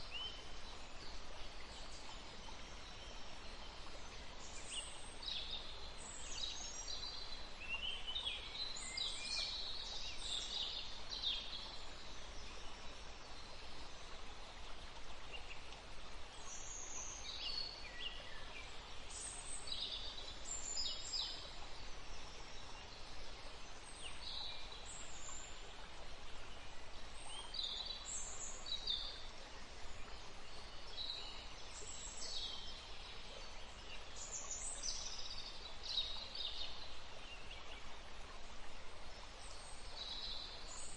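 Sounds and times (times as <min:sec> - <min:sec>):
stream running: 0:00.0 - 0:40.9.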